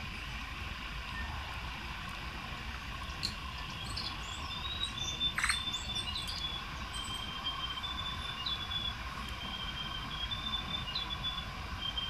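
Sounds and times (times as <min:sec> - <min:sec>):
high whistled bird notes: 0:03.8 - 0:12.0.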